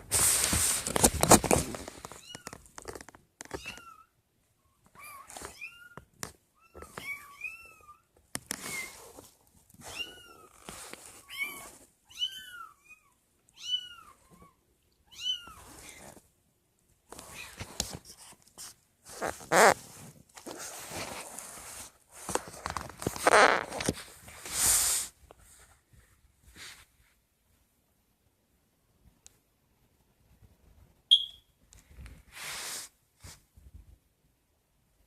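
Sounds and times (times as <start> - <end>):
rustling and scuffling: 0.0 - 3.9, 4.9 - 12.0, 17.1 - 27.2.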